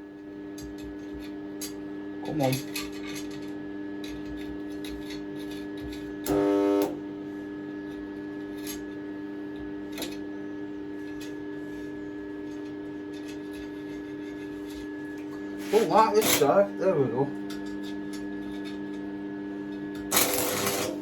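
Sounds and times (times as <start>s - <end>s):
welder electrical hum: 0.0s - 21.0s
loud buzz: 6.2s - 7.0s.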